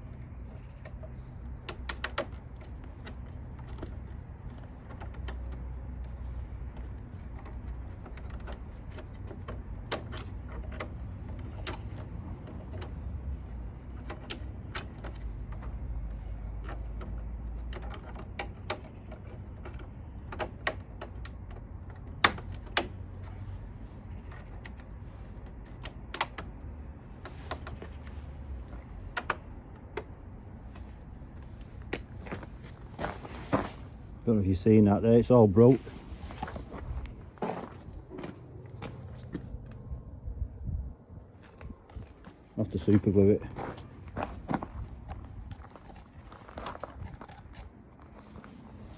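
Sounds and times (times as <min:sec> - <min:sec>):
parts clicking and knocking: 0:00.0 - 0:34.0
low steady rumble: 0:00.0 - 0:48.9.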